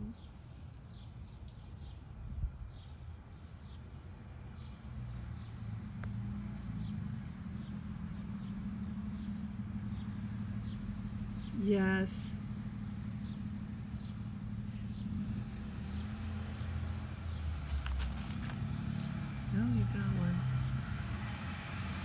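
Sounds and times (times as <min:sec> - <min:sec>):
low engine drone: 0:06.0 - 0:22.0
bird chirping: 0:06.7 - 0:20.9.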